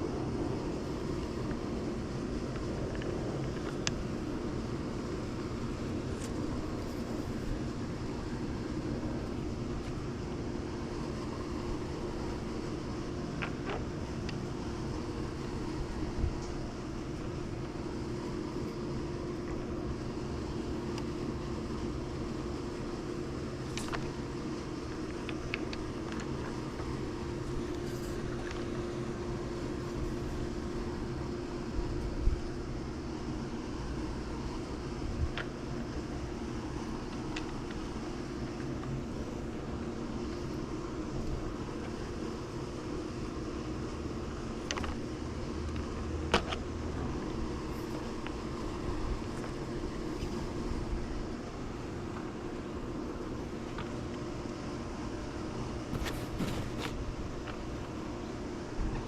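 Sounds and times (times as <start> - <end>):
pool pump humming: 0.0 - 59.0.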